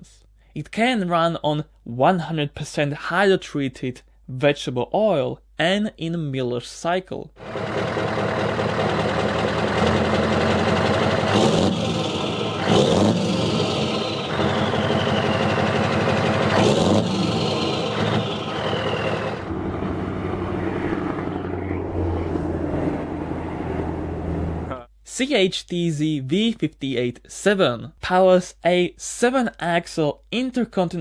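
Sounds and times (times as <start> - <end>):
diesel engine revving: 7.4 - 24.8
turbo whistle falling in pitch: 14.3 - 15.8.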